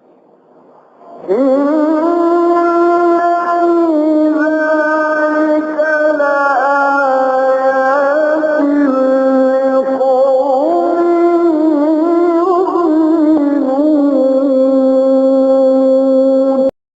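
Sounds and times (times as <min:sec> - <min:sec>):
man reciting melodically: 0:01.2 - 0:16.8.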